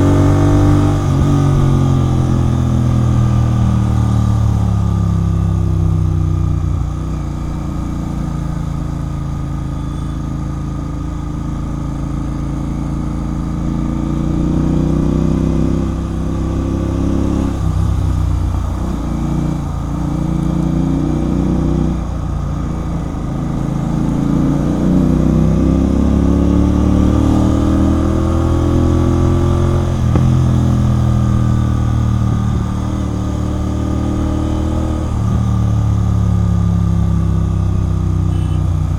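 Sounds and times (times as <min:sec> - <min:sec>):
motorcycle engine riding: 0:00.0 - 0:38.9.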